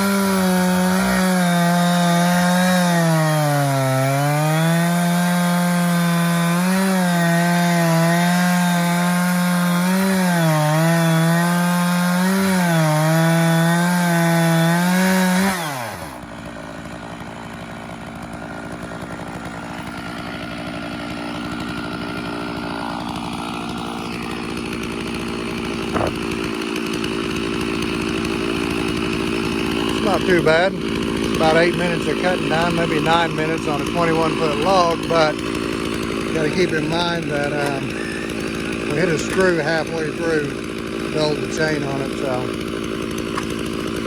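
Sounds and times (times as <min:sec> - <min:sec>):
chainsaw cutting through log: 0:00.0 - 0:44.0.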